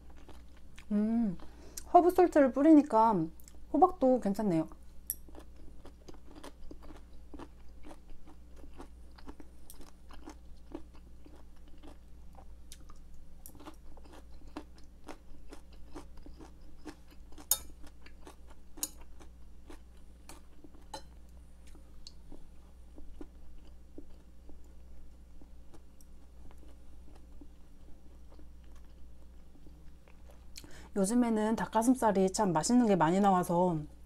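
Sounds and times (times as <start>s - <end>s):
wet chewing and mouth smacks: 5.2s - 19.1s.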